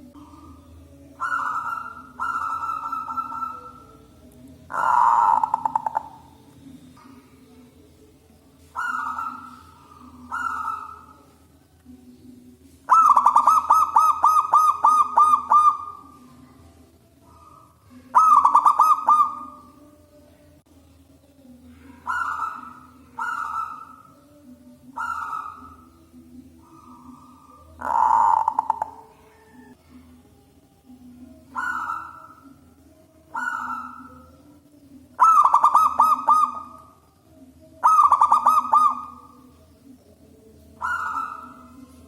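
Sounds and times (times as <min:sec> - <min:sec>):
dove cooing: 0:00.0 - 0:07.6, 0:08.6 - 0:11.5, 0:12.8 - 0:20.0, 0:21.7 - 0:30.0, 0:31.0 - 0:37.0, 0:37.7 - 0:39.7, 0:40.4 - 0:42.0.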